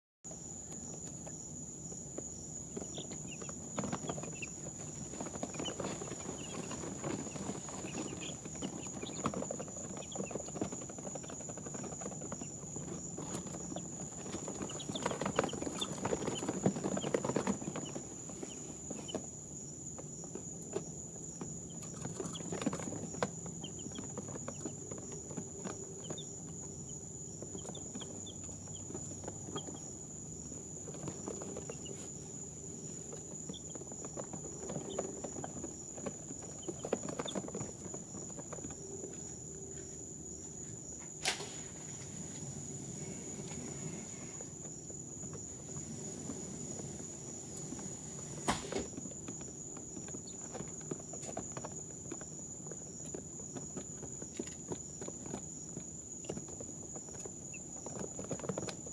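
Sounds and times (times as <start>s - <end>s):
chicks peeping: 0.6s - 39.4s
rustling and scratching: 0.8s - 58.9s.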